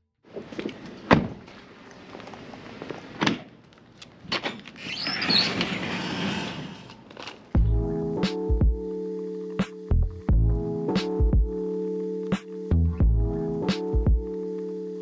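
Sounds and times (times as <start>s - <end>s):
high squeal: 4.8s - 7.1s.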